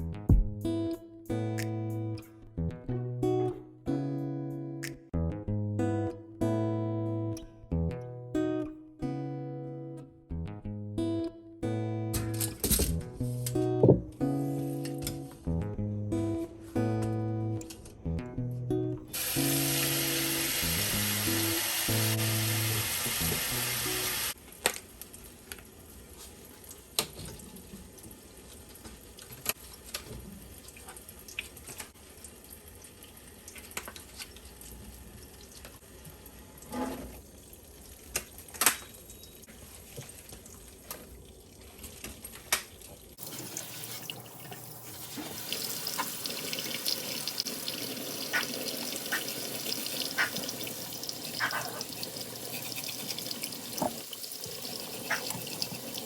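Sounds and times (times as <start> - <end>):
tap running into a sink: 43.2 - 56.0.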